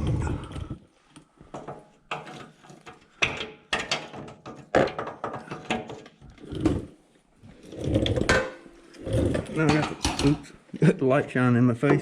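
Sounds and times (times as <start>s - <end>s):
hand tools clanking on metal: 9.4s - 10.5s.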